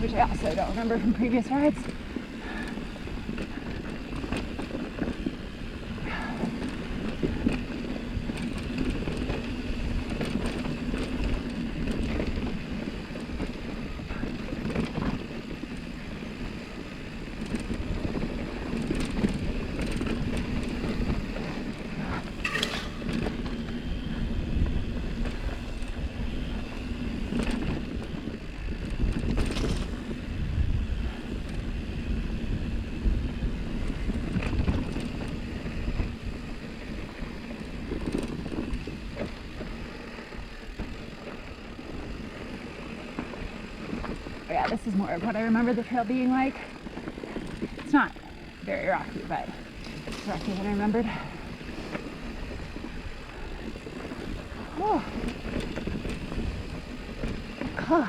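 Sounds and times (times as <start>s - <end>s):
bike tyre and drivetrain noise: 0.0s - 58.0s
wind on microphone: 17.7s - 37.2s.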